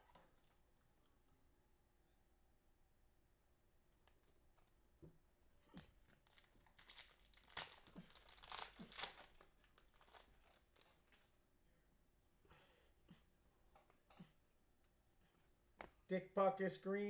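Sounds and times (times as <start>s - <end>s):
cellophane wrapper tearing and crinkling: 6.0s - 11.3s.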